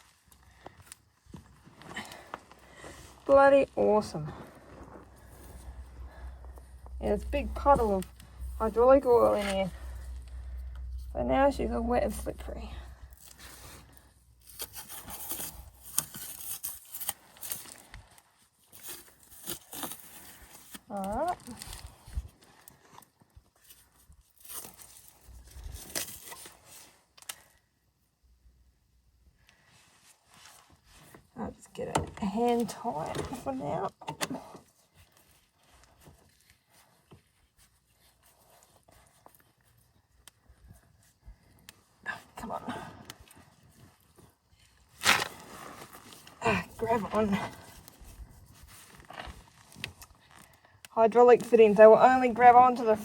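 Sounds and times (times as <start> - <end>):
hose rubbing and scraping: 2.8 - 17.8.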